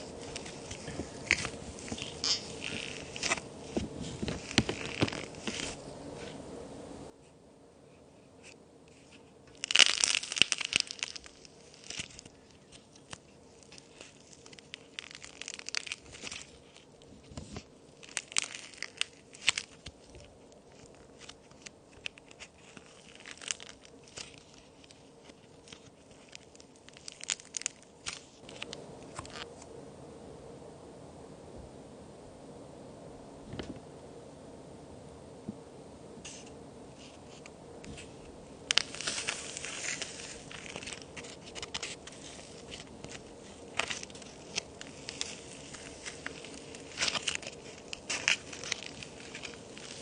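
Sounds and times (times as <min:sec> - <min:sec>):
toy cookies crumbling crisply: 0:00.2 - 0:05.8, 0:09.5 - 0:17.0, 0:17.7 - 0:29.5, 0:38.6 - 0:50.0.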